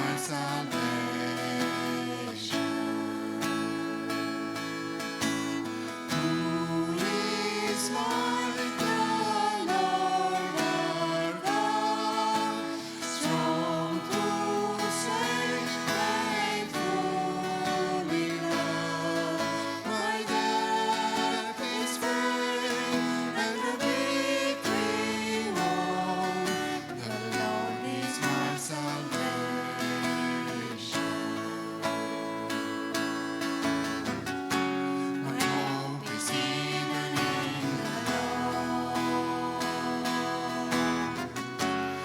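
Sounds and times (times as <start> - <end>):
acoustic guitar: 0.0 - 42.0
person singing: 0.0 - 42.0.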